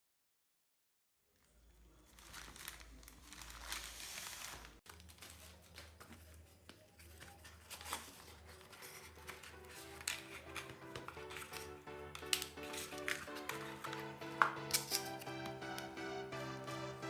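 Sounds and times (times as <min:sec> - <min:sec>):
small clicks and crackles: 0:01.3 - 0:13.9
plastic packaging crinkling: 0:01.4 - 0:15.4.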